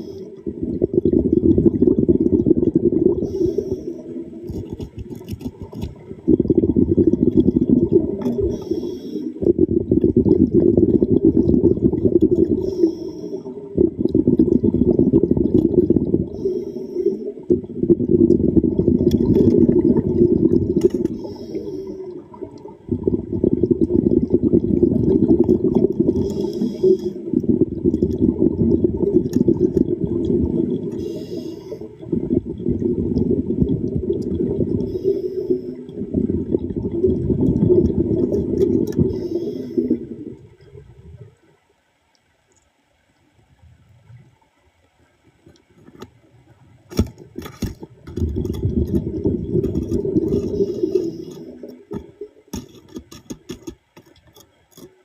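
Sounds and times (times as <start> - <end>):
muffled underwater rushing: 0.0 - 41.6, 43.4 - 53.6
faint high hisses: 8.5 - 9.4, 31.0 - 32.0, 39.1 - 40.0.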